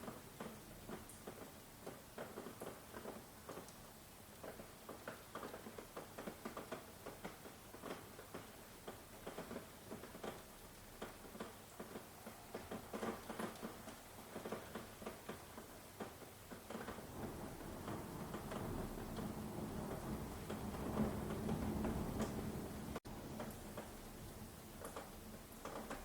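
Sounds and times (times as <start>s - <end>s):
rain falling: 0.0s - 26.0s
raindrops tapping: 0.0s - 26.0s.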